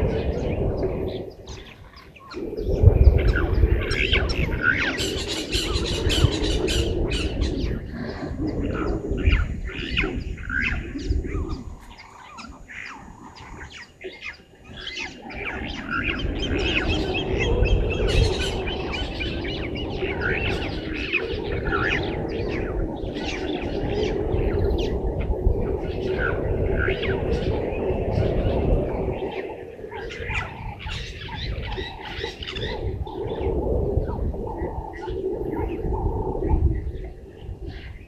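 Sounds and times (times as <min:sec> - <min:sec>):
birds squawking and chirping: 0:00.0 - 0:38.0
steady low rumble: 0:00.0 - 0:38.0.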